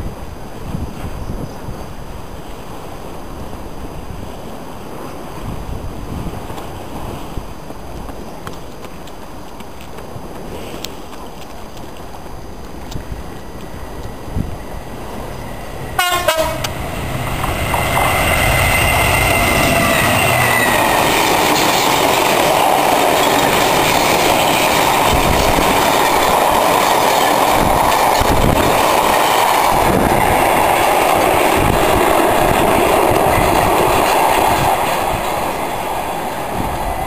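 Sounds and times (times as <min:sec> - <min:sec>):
freight train wheels rumbling: 0:00.0 - 0:37.0
wheels clacking over rail joints: 0:08.0 - 0:37.0.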